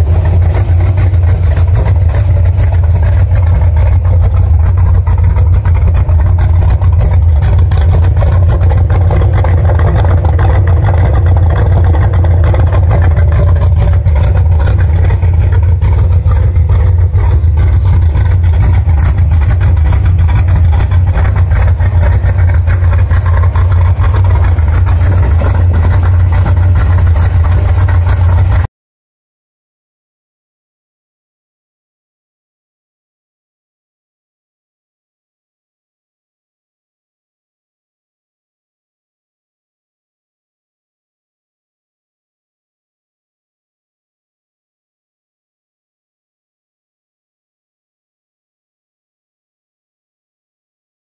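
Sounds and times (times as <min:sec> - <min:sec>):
car engine idling loudly: 0:00.0 - 0:28.7.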